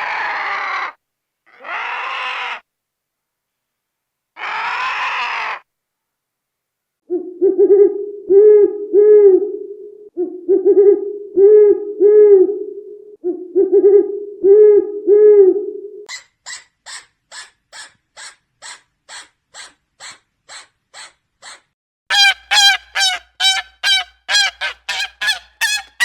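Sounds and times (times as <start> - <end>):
animal hooting call: 22.1 - 26.0.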